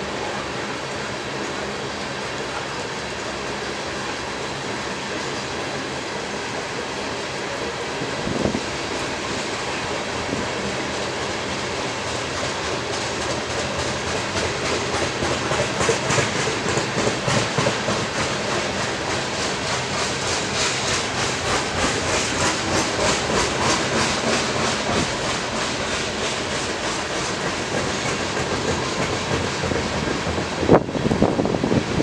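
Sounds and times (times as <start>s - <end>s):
train rolling past: 0.0s - 32.0s
wheels clacking over rail joints: 7.6s - 31.8s.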